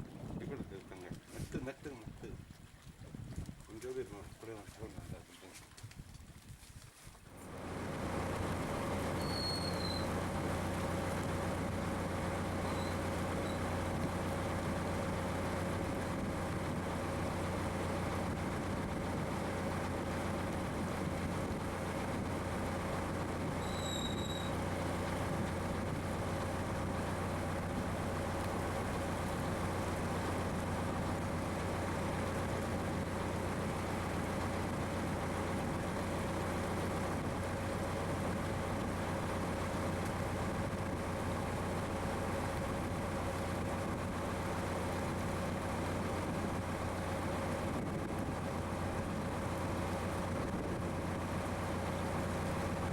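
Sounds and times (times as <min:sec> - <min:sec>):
boat engine running: 0:00.0 - 0:05.3, 0:07.3 - 0:52.9
short high chirp: 0:09.2 - 0:10.1.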